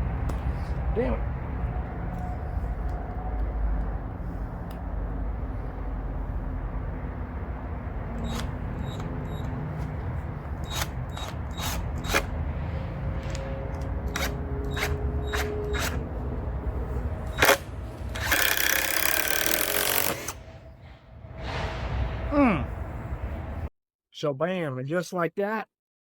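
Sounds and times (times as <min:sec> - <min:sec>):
power drill running: 0:08.1 - 0:09.9, 0:10.5 - 0:12.3, 0:14.1 - 0:16.0, 0:17.3 - 0:20.4.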